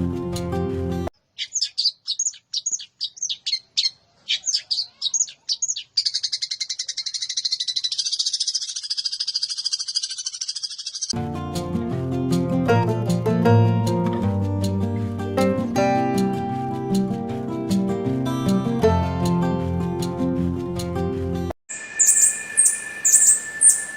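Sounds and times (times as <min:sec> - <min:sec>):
guitar music: 0:00.0 - 0:01.1, 0:11.2 - 0:21.5
songbird singing: 0:01.1 - 0:11.2, 0:21.7 - 0:23.9.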